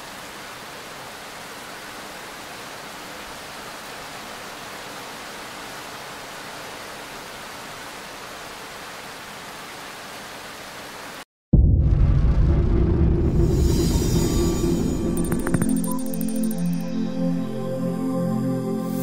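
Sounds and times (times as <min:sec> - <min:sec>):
rain falling steadily: 0:00.0 - 0:11.3.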